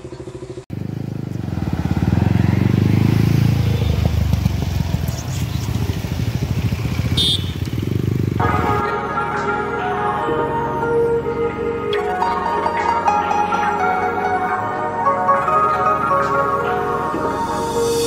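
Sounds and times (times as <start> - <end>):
motorcycle engine running: 0.0 - 8.9
background music: 8.4 - 18.0.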